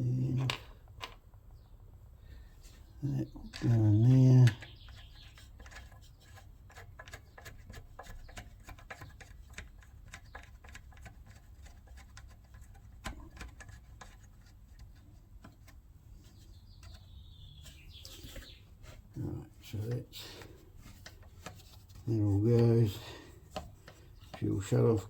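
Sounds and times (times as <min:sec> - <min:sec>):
small clicks and taps of parts: 0:04.4 - 0:17.0, 0:20.3 - 0:22.0, 0:23.4 - 0:24.5.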